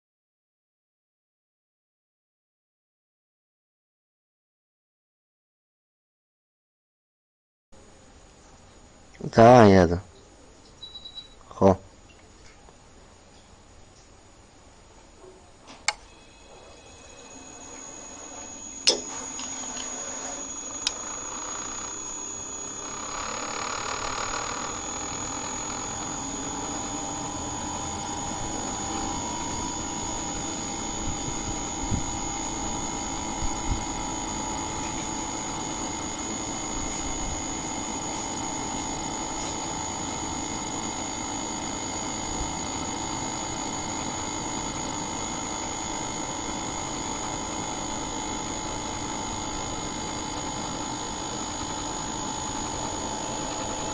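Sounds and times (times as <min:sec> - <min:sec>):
machine humming with high whine: 0:07.8 - 0:53.9
machine click: 0:18.8 - 0:20.0.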